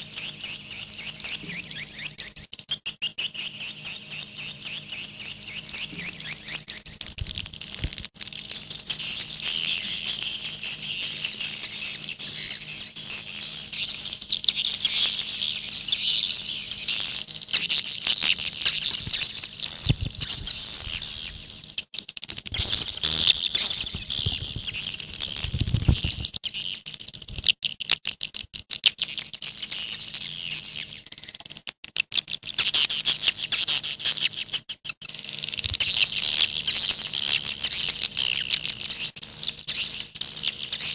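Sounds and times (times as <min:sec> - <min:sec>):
faint steady hum: 0:03.3 - 0:27.5
swiftlets twittering: 0:22.5 - 0:26.6.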